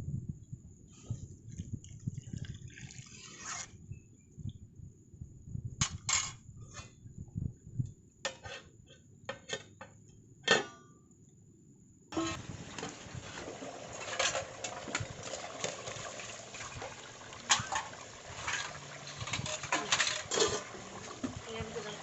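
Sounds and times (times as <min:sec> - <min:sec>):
pots and dishes clinking: 0:12.2 - 0:22.0.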